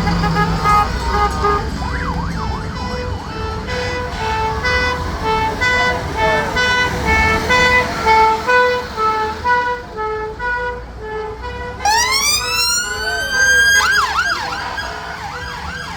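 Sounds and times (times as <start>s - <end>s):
emergency vehicle siren: 0.0s - 15.9s.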